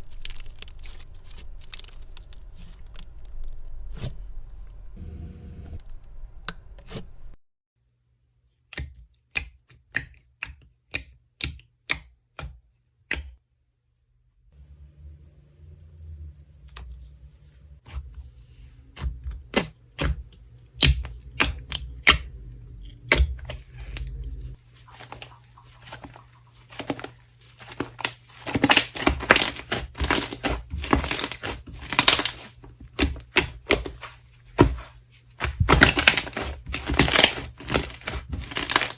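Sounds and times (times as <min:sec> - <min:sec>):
slime clicking and crackling: 0:26.7 - 0:38.9.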